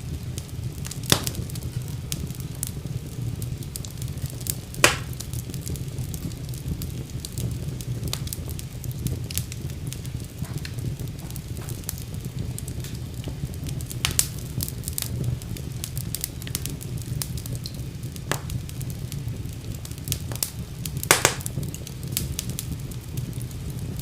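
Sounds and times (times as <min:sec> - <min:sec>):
fire crackling and rumbling: 0:00.0 - 0:24.0
fire popping: 0:00.0 - 0:24.0.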